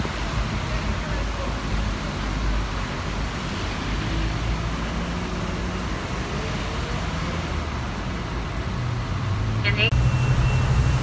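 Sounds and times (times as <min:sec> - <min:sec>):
road and traffic noise: 0:00.0 - 0:11.0
low bus engine rumble: 0:07.2 - 0:11.0.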